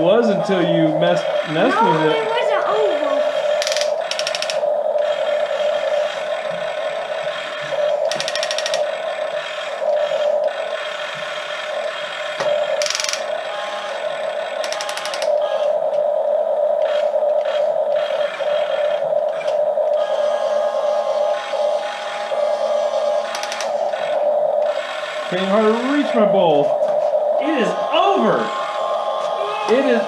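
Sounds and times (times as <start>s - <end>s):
toy electric motors whirring: 0.2s - 15.9s, 16.8s - 26.4s, 27.4s - 30.0s
rapid ratchet-like clicking: 3.5s - 4.6s, 8.0s - 8.9s, 12.7s - 13.3s, 14.6s - 15.3s, 23.2s - 24.1s.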